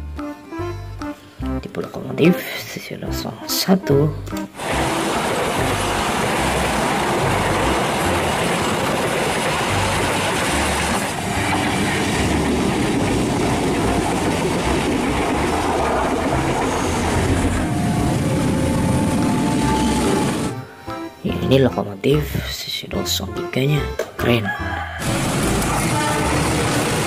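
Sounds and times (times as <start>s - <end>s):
passenger trains passing on rails: 4.4s - 23.2s, 25.0s - 27.0s.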